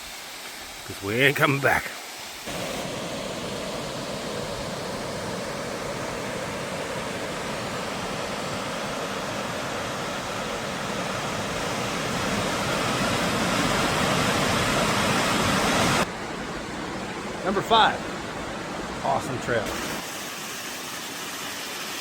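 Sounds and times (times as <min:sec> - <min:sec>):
water rushing over waterfall: 0:01.0 - 0:16.1.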